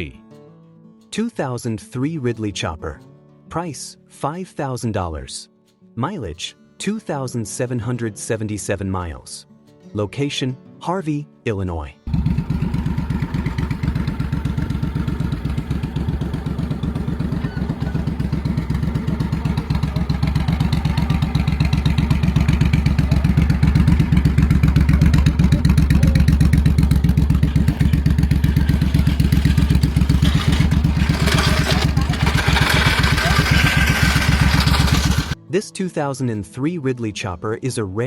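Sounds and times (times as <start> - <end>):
motorcycle engine running: 12.1 - 35.4.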